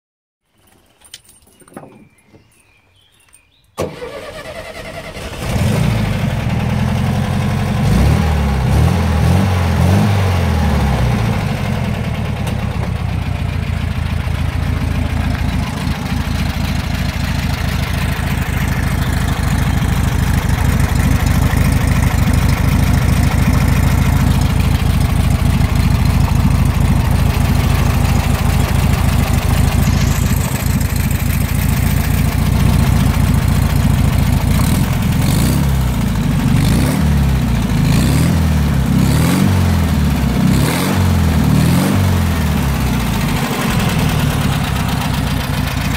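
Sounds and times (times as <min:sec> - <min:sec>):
car engine starting and idling: 0:03.8 - 0:45.9
sporty exhaust note: 0:14.0 - 0:35.6.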